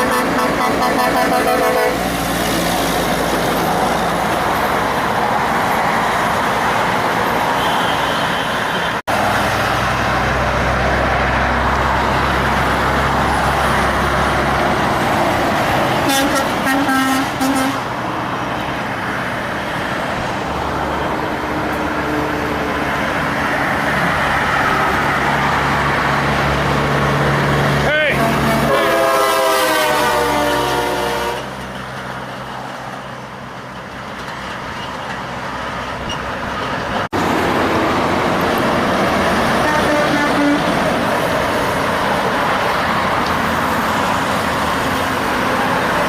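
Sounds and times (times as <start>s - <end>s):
truck horn: 0.0s - 2.1s, 16.0s - 17.9s, 28.0s - 31.6s, 39.6s - 40.8s
heavy trucks passing: 0.0s - 46.0s.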